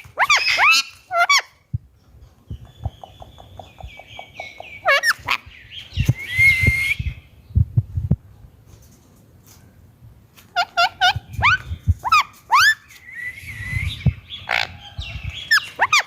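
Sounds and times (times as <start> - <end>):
parrot screeches: 0.2 - 1.5
low knocks and thumps: 6.0 - 8.3.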